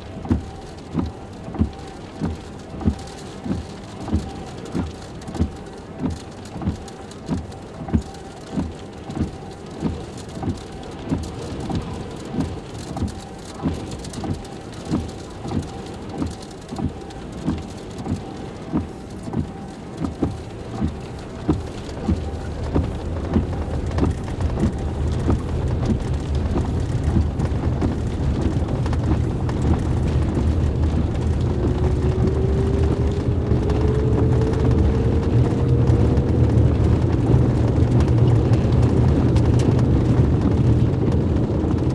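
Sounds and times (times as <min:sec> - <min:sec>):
heavy rain: 0:00.0 - 0:41.9
strong wind rumble: 0:21.2 - 0:41.9.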